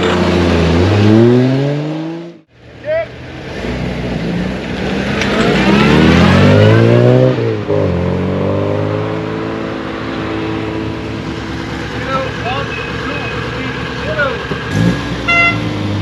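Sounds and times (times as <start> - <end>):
car engine accelerating: 3.4 - 16.0.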